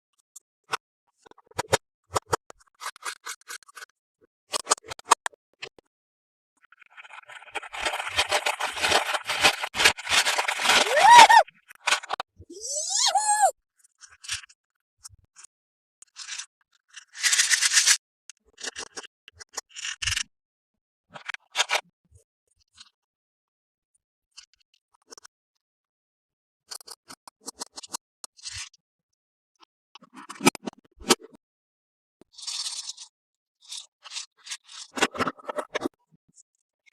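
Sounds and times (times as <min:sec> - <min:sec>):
toys and packaging handled: 0:07.3 - 0:13.5.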